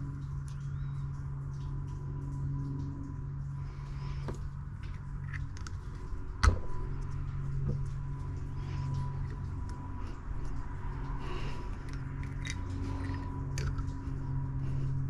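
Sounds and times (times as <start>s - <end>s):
steady low hum: 0.0s - 15.0s
small clicks of parts handled: 4.2s - 6.6s, 11.8s - 14.0s.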